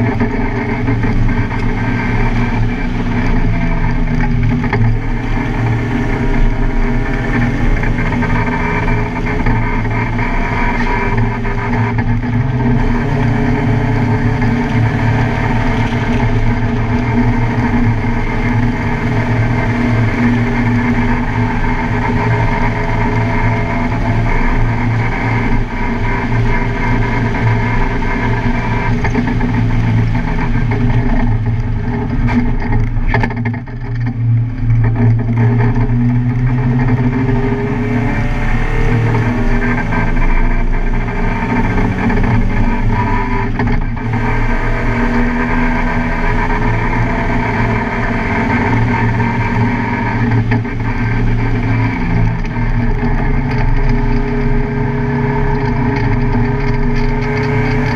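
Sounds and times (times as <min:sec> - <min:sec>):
race car engine accelerating: 0:00.0 - 0:57.9.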